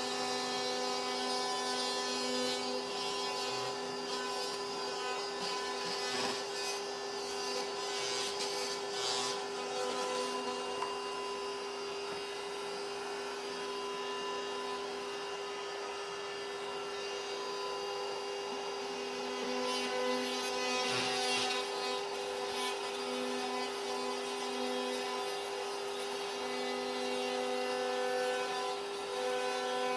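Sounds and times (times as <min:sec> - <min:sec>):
power tool cutting drywall: 0:00.0 - 0:29.9.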